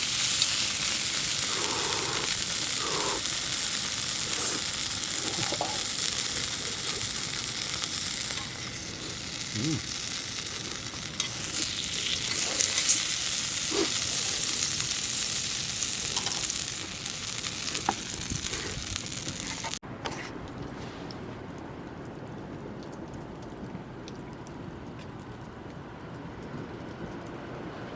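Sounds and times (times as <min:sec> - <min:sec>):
food sizzling in a pan: 0:00.0 - 0:19.8.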